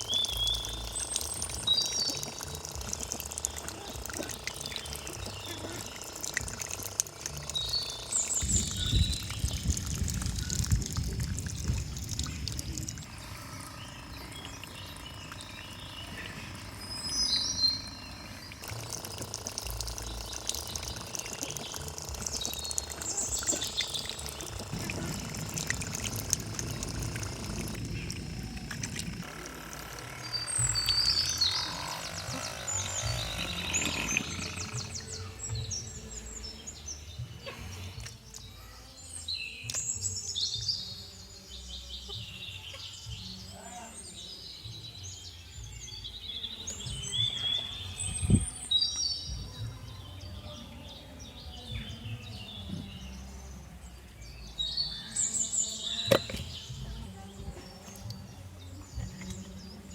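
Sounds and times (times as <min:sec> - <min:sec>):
water pouring and splashing: 0:00.0 - 0:35.6
birds chirping: 0:00.0 - 0:59.9.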